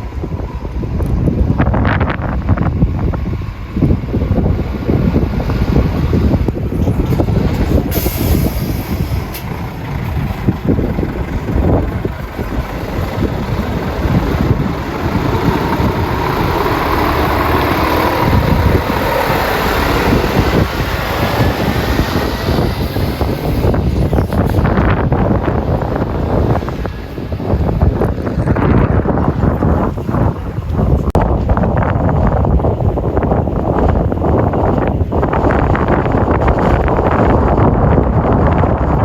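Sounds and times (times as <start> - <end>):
diesel truck engine running: 0.0 - 39.0
air hiss: 7.8 - 9.5.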